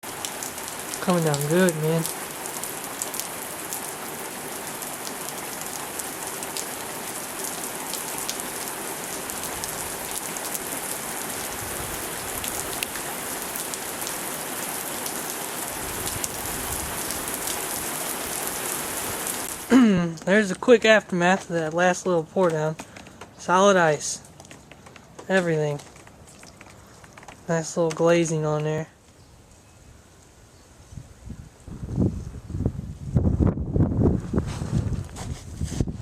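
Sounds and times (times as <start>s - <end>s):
heavy rain hissing: 0.0s - 20.2s
raindrops ticking on surfaces: 0.0s - 30.4s.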